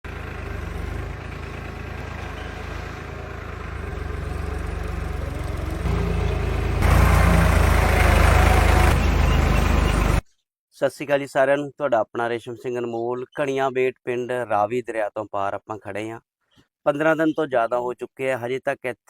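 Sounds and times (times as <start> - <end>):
generator engine running: 0.1 - 10.2.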